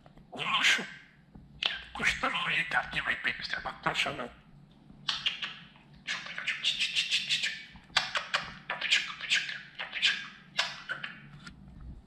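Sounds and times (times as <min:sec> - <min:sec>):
budgerigar chattering: 0:05.0 - 0:11.3.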